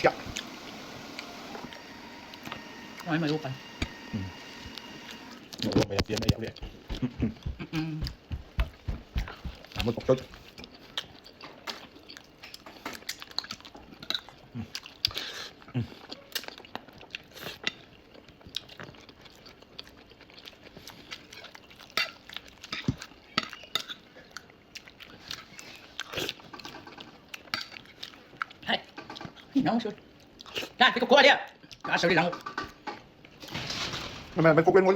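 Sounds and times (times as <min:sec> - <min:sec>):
person chewing: 0:06.5 - 0:29.5, 0:30.1 - 0:30.8.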